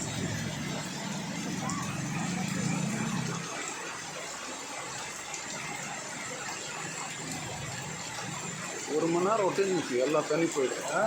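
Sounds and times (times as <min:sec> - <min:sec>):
vehicle engine hum: 0:00.0 - 0:04.0
floodwater rushing: 0:00.0 - 0:11.0.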